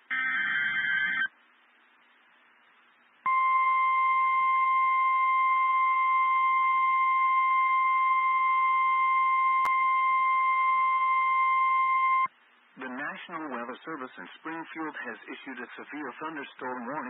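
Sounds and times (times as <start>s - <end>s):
high electronic alarm tone: 0.1s - 1.3s.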